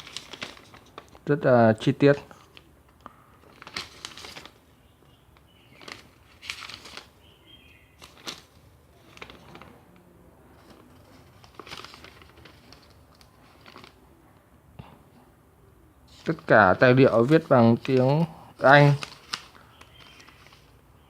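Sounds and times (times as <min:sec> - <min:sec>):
paper pages turning: 0:00.0 - 0:01.3, 0:02.1 - 0:04.6, 0:05.4 - 0:07.3, 0:07.9 - 0:14.0, 0:16.1 - 0:21.0.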